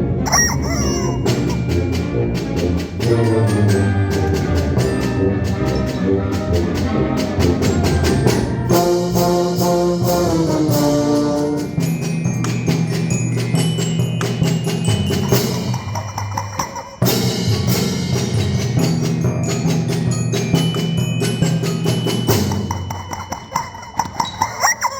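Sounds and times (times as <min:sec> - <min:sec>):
brass band playing a galop: 0:00.0 - 0:12.1
rapid percussion strokes: 0:00.2 - 0:24.9.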